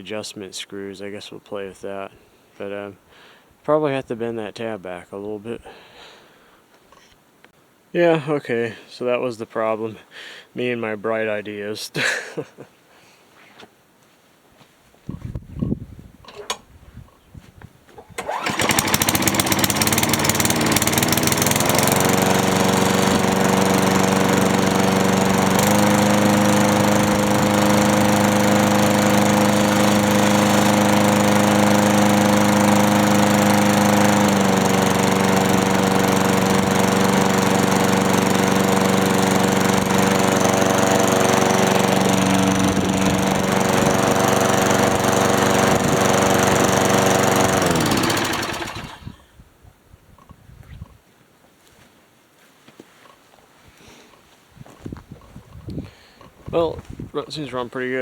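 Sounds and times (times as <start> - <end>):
lawn mower engine running: 18.2 - 49.2.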